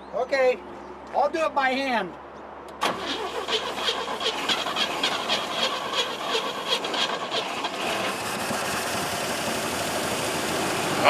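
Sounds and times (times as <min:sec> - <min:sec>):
old car engine running rough: 0:02.8 - 0:11.0.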